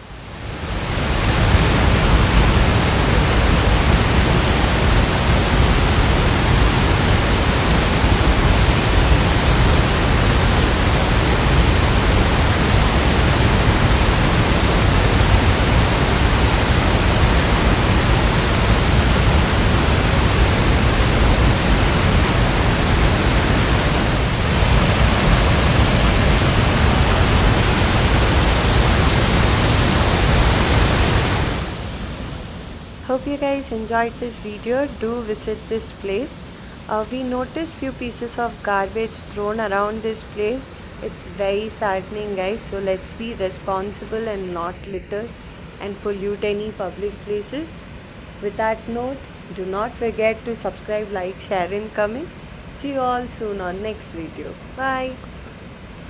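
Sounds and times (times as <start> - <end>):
river water rushing over dam: 0.0 - 33.0.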